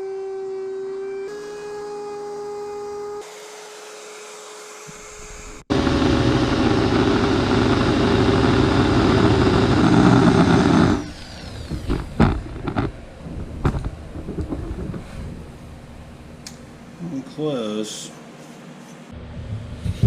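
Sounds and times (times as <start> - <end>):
electric router whining: 0.9 - 13.0
router bit cutting wood: 1.3 - 12.9.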